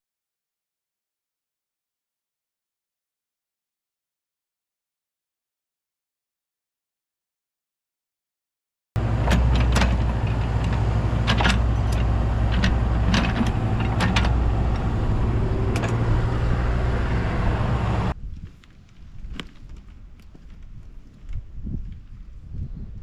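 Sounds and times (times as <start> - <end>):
excavator diesel engine running: 9.0 - 18.1.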